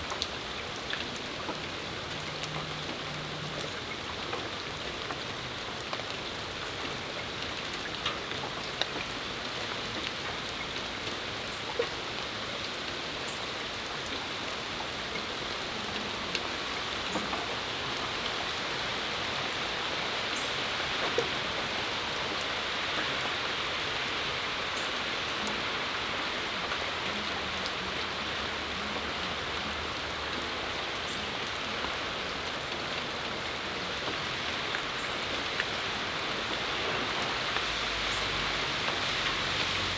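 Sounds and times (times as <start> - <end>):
drips and ticks: 0.0 - 39.9
rain shower hissing: 15.8 - 39.9.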